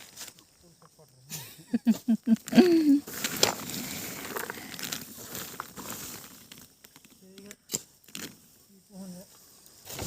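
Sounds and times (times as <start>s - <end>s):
rustling and crackling: 0.0s - 1.2s, 1.9s - 10.0s.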